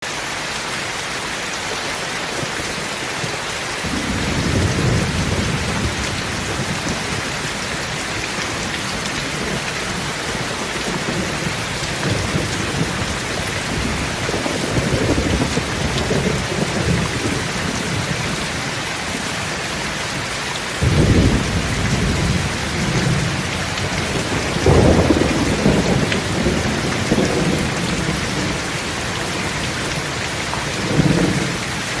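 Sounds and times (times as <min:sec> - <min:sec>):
steady rain: 0:00.0 - 0:32.0
thunder rumbling: 0:03.8 - 0:19.2, 0:20.8 - 0:32.0.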